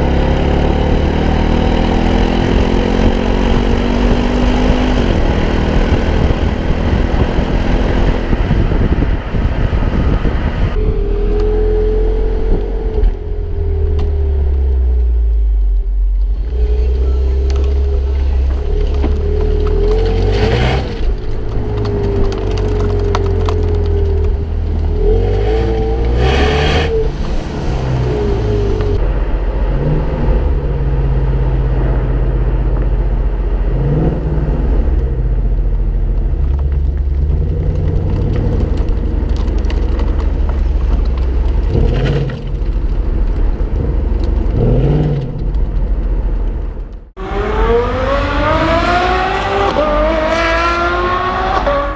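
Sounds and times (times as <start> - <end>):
car accelerating hard: 0.0 - 13.2, 16.5 - 32.2, 47.2 - 51.9
car engine revving: 0.0 - 35.5, 36.4 - 51.9.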